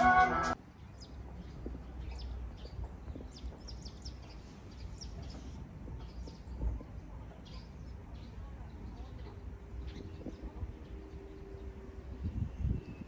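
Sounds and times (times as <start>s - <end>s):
small birds chirping: 0.7s - 13.0s.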